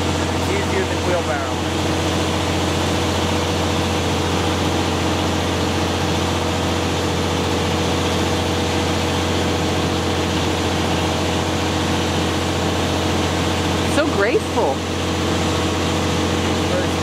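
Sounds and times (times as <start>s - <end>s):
truck engine humming: 0.0s - 17.0s.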